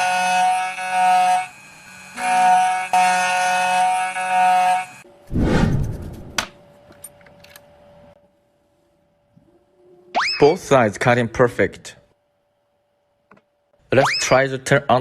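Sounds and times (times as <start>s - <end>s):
key cutting machine whining: 0.0s - 5.0s
low rushing noise: 5.3s - 6.5s.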